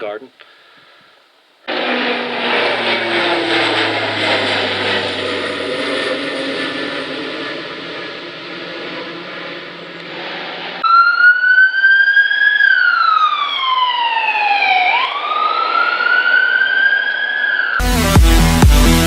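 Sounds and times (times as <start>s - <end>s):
steady whirring: 1.7s - 10.8s
wailing siren: 1.7s - 17.8s.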